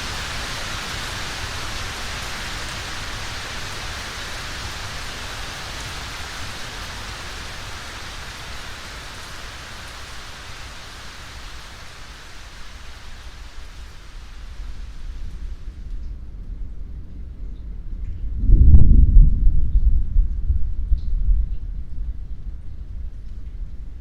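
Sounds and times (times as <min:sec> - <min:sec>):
steady rain: 0:00.0 - 0:24.0
low rumble: 0:14.6 - 0:24.0.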